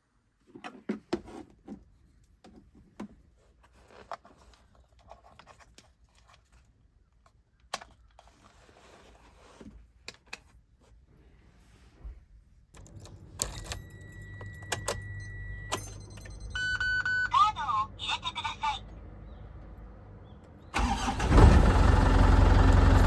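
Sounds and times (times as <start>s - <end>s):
objects being handled: 0.4s - 11.1s.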